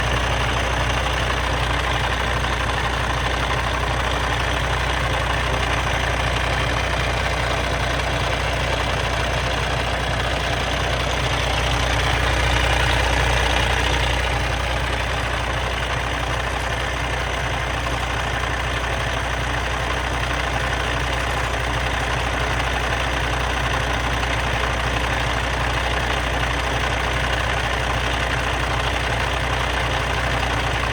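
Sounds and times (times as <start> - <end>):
truck diesel engine idling: 0.0 - 30.9.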